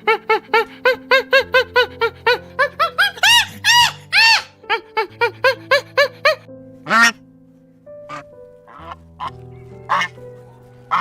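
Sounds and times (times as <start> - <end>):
background music: 0.0 - 11.0
animal squealing: 2.8 - 4.6
squeaking animal calls: 2.8 - 4.6, 8.1 - 10.2.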